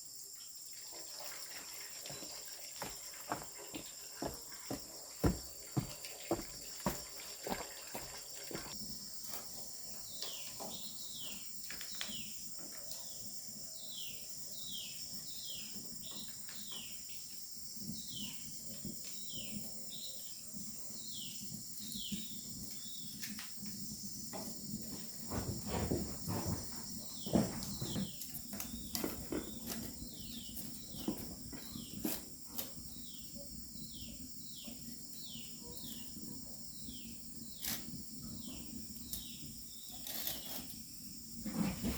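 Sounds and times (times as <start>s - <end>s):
knocks and rustles: 24.3s - 32.4s, 41.4s - 41.9s.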